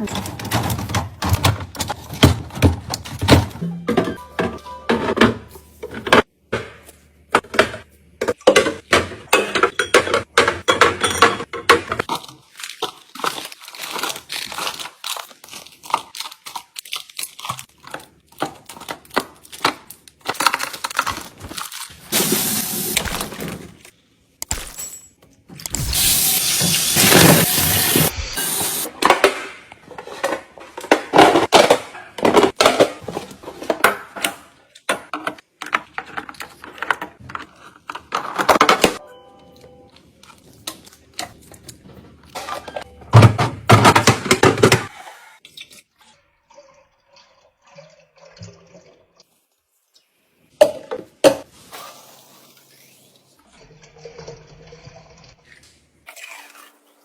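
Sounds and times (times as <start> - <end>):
groceries clicking and clattering: 0.0 - 39.0, 39.9 - 46.0
plastic crinkling: 12.1 - 22.1.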